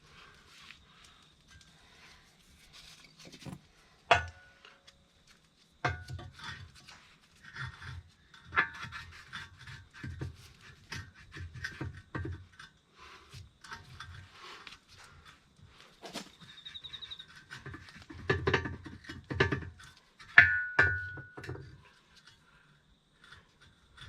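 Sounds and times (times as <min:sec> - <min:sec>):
irregular metal knocks: 0:17.3 - 0:21.7.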